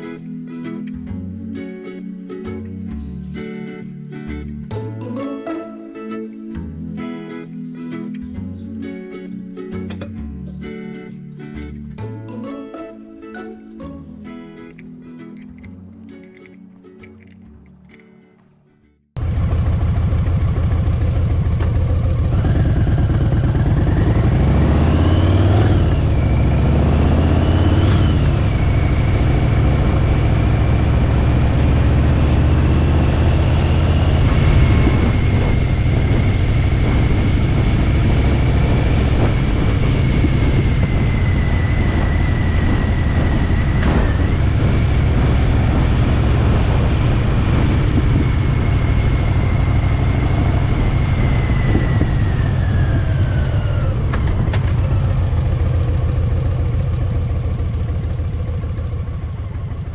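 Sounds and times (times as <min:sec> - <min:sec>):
motorcycle engine accelerating: 0:19.2 - 0:59.9.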